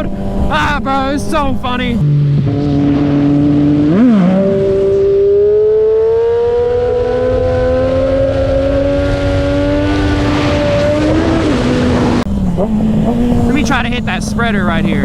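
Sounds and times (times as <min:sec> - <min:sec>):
wind rush: 0:00.0 - 0:02.0
motorcycle engine revving: 0:00.0 - 0:15.0.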